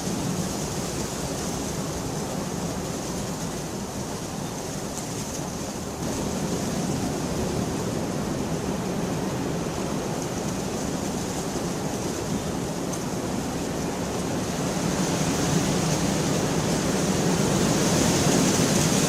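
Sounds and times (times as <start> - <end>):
steady rain hissing: 0.0 - 19.0.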